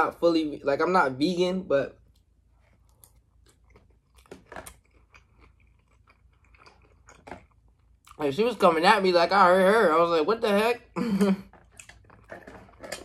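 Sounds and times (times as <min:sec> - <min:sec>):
person chewing with wet mouth sounds: 0:02.0 - 0:08.2, 0:11.6 - 0:12.4.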